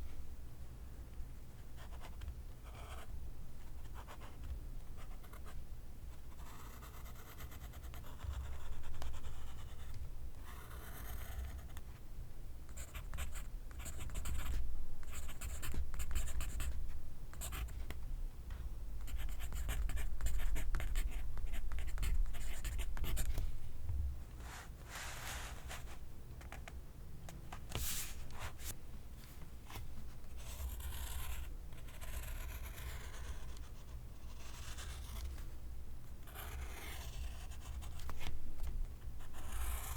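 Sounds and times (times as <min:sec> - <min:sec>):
pencil scratching on paper: 0:30.3 - 0:35.3, 0:36.2 - 0:38.3, 0:39.2 - 0:39.9.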